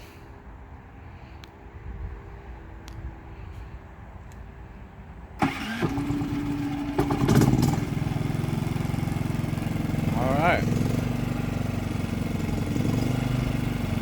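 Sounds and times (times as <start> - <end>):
electric starter cranking: 5.4 - 9.3
generator engine running: 5.4 - 14.0.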